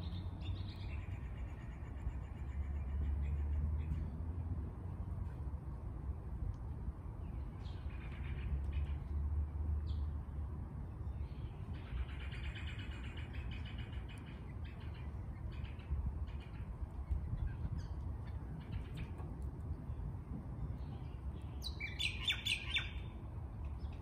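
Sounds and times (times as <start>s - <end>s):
steady low rumble: 0.0s - 22.0s
birds chirping and calling: 11.2s - 19.3s, 20.8s - 24.0s.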